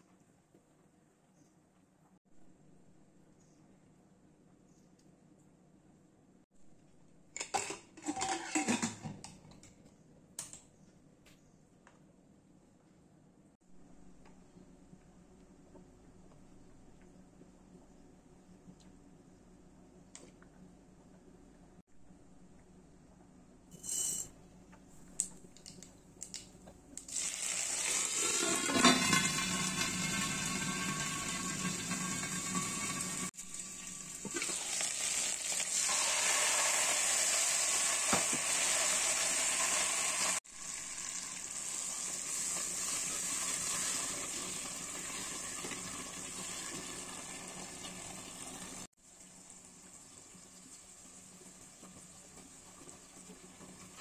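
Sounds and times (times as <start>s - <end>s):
oil sizzling in a pot: 27.0s - 54.0s.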